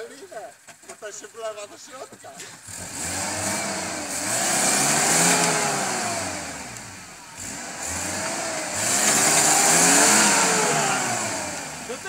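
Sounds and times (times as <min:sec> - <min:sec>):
engine revving up and down: 0:02.6 - 0:12.0.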